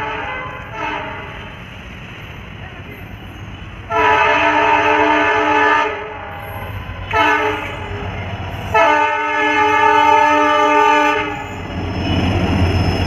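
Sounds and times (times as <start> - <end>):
locomotive horn blasts: 0.0 - 1.5, 3.9 - 8.0, 8.7 - 11.4
train rumbling: 0.0 - 13.0.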